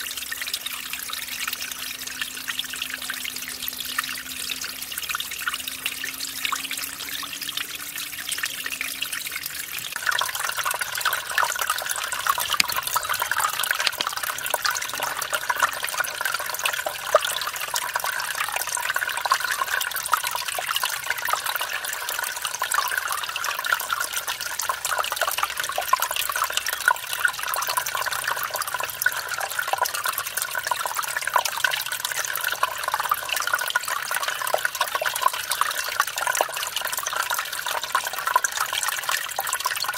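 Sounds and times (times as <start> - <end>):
stream splashing over small waterfall: 4.7 - 22.2.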